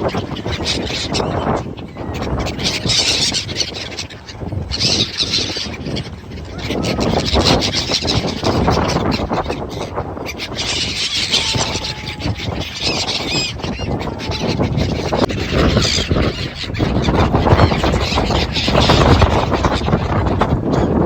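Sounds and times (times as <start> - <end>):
seagulls calling: 0.0 - 21.0
wind rumble: 0.0 - 21.0
harbour noise: 10.1 - 21.0.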